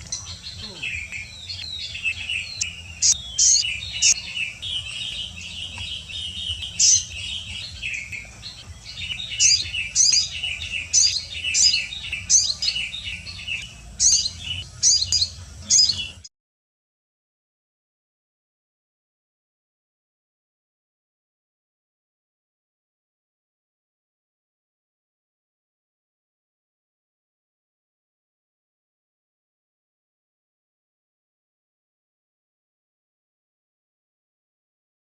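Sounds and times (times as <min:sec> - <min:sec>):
small birds chirping: 0:00.0 - 0:16.3.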